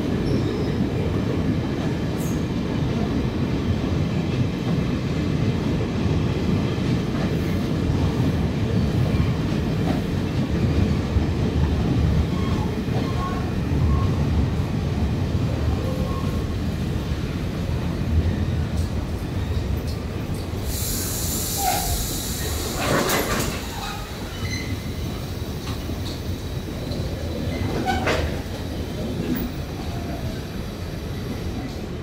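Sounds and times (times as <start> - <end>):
train rumbling: 0.0 - 32.0
high hiss: 20.5 - 27.5.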